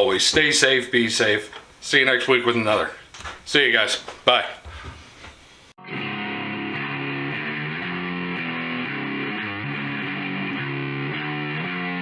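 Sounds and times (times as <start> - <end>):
distorted electric guitar riff: 5.8 - 12.0.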